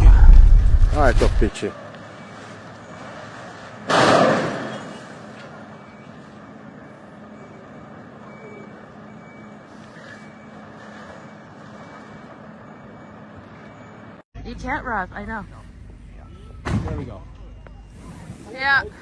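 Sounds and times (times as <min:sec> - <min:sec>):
sudden loud noise: 0:00.0 - 0:01.6
vehicle noise: 0:00.0 - 0:19.0.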